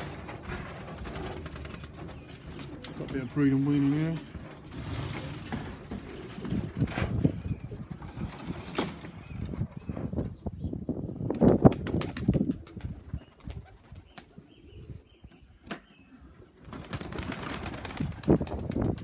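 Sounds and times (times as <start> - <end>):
pigeons flapping wings: 0.0 - 8.7, 11.3 - 14.4, 16.6 - 19.0.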